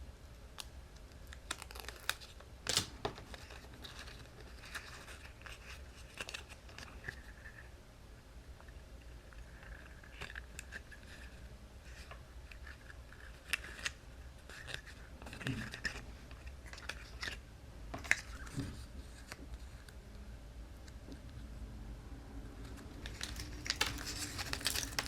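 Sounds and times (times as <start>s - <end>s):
paper rustling: 23.0s - 25.0s.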